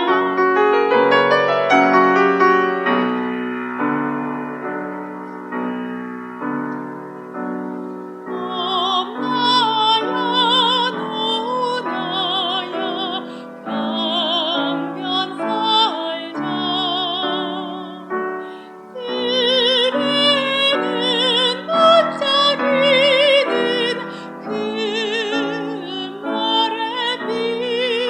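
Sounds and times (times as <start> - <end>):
soprano singing operatically: 0.0 - 1.3, 8.2 - 28.0
piano playing chords: 0.0 - 28.0.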